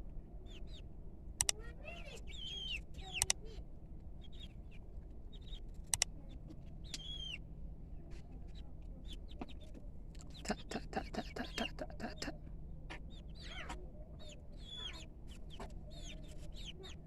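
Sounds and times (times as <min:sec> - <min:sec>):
chicks peeping: 0:00.4 - 0:00.9, 0:01.5 - 0:03.6, 0:04.2 - 0:07.4, 0:08.1 - 0:17.0
sharp clicks: 0:01.4 - 0:01.6, 0:03.1 - 0:03.4, 0:05.8 - 0:06.1, 0:06.9 - 0:07.1.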